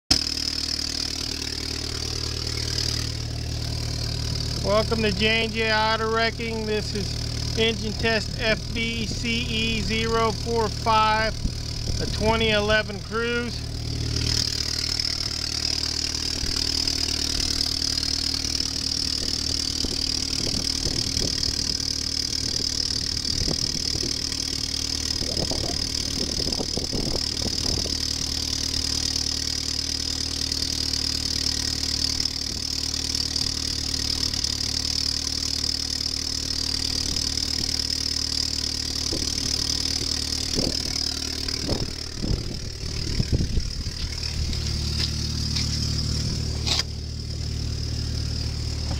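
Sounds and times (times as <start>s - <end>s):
car engine idling: 0.1s - 48.9s
faint engine knocks: 39.0s - 48.0s, 48.6s - 48.9s.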